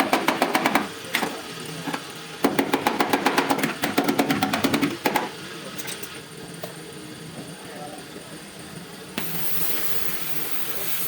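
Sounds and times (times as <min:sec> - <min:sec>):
rapid hammer strikes on steel: 0:00.0 - 0:01.0, 0:02.4 - 0:05.4.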